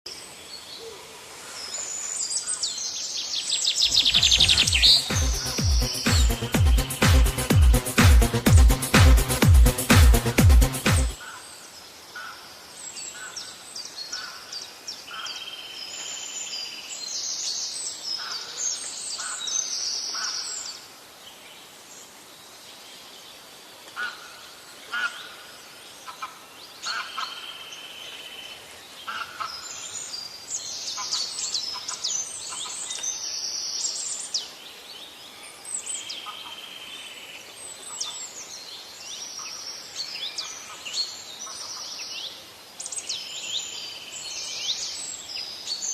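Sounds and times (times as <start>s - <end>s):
faint background hiss: 0.1s - 5.2s, 11.2s - 45.9s
songbirds singing and chirping: 1.5s - 7.2s, 24.9s - 45.9s.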